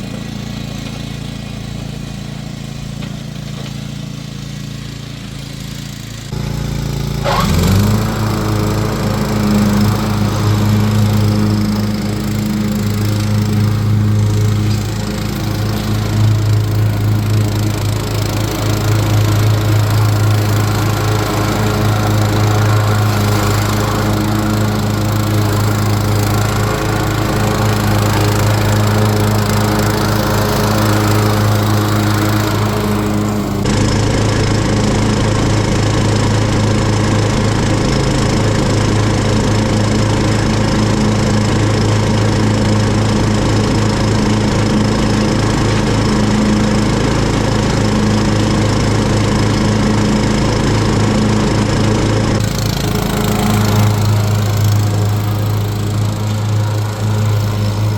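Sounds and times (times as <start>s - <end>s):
riding lawn mower running: 0.0s - 57.9s.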